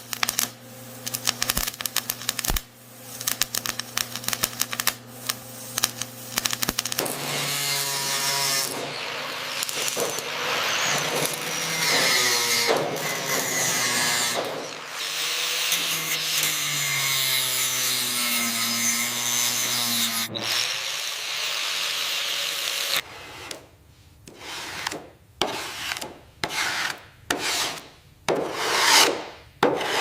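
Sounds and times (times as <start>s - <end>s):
power tool humming: 3.2s - 23.0s
rasping strokes: 5.8s - 23.6s, 24.3s - 30.0s.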